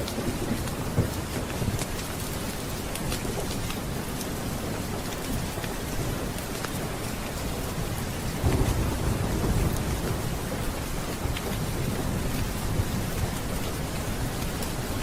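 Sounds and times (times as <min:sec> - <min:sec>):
steady rain: 0:00.0 - 0:15.0
thunder rumbling: 0:07.7 - 0:14.8.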